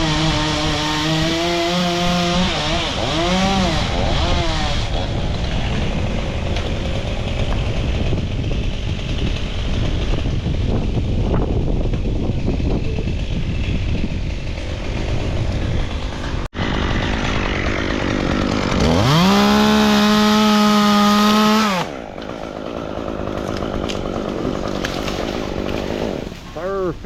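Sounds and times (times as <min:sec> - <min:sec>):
chainsaw revving: 0:00.0 - 0:26.4
wind rumble on microphone: 0:03.3 - 0:16.8.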